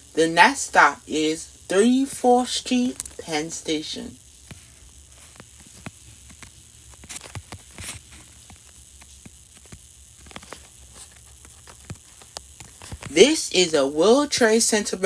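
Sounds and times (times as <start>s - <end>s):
faint clicks and ticks: 4.2s - 13.1s.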